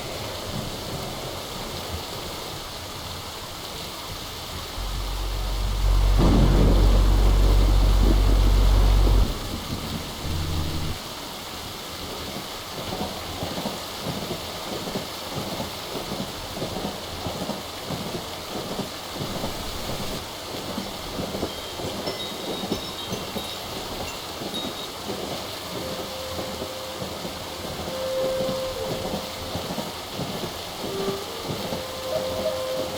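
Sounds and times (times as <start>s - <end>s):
steady rain: 0.0s - 32.9s
deep rumble of thunder: 4.8s - 11.0s.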